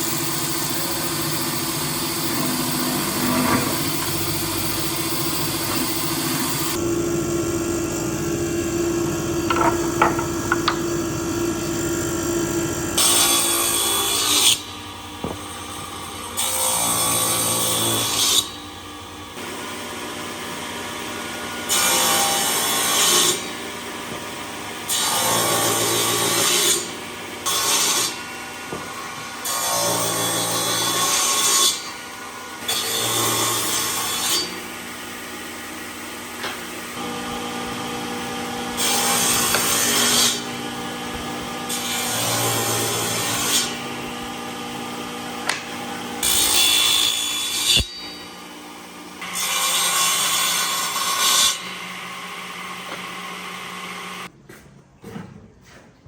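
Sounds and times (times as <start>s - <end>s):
machine hum: 0.0s - 16.3s
power tool cutting wood: 0.0s - 18.7s, 19.3s - 24.1s, 24.7s - 34.8s, 36.4s - 54.3s.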